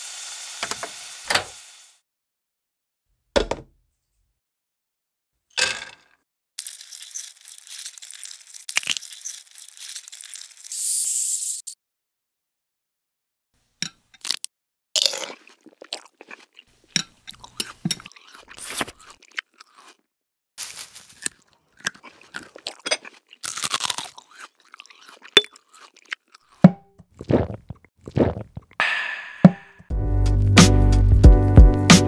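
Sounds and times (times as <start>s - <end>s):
crunching and chewing: 6.6s - 10.7s, 14.2s - 28.8s.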